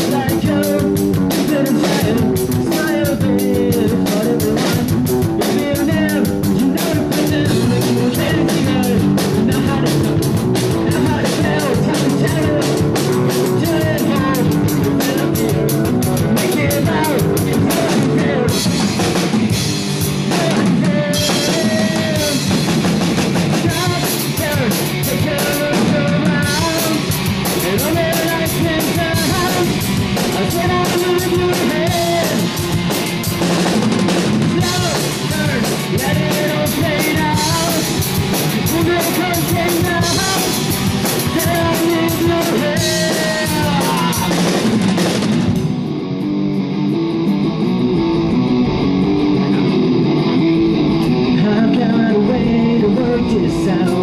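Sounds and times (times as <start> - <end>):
drum kit: 0.0 - 54.0
rock band playing: 0.0 - 54.0.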